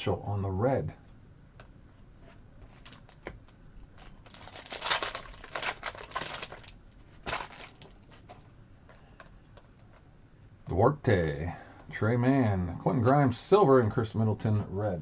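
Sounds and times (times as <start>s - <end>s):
plastic wrapper tearing and crinkling: 2.8s - 3.2s, 4.0s - 8.0s.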